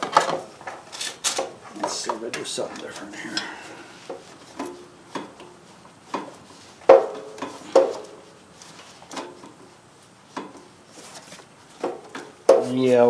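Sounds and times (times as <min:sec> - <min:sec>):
wrench clanking against metal: 0:00.0 - 0:03.6.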